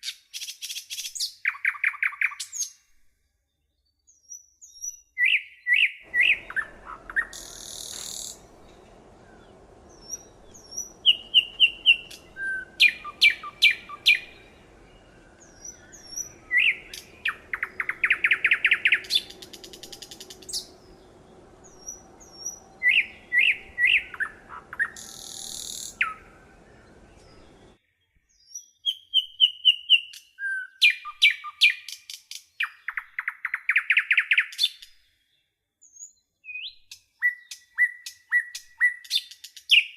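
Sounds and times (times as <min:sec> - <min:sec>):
songbird chirps and trills: 0:03.4 - 0:34.9.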